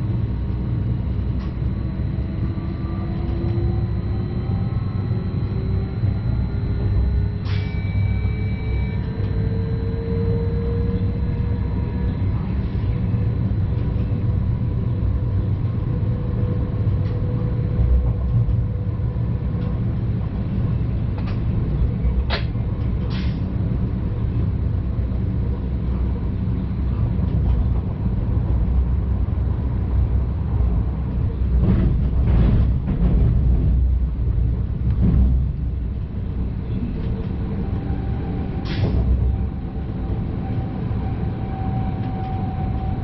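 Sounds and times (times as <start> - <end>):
faint steady whine: 0.0 - 21.5
train low rumble: 0.0 - 43.0.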